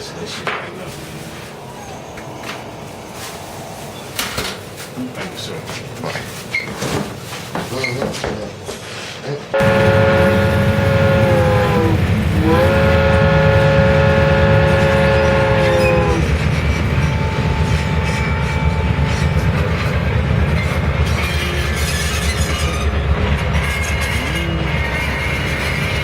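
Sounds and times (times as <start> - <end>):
loud horn chord: 9.6 - 16.3.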